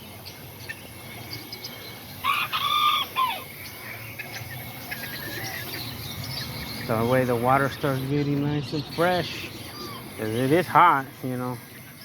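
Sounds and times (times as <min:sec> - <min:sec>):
rooster crowing: 0:02.2 - 0:03.5.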